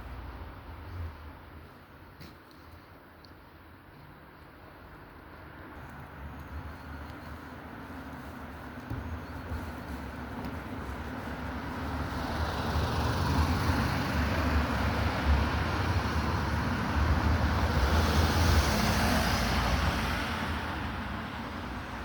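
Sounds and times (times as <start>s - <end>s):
road vehicle passing: 4.8s - 22.0s.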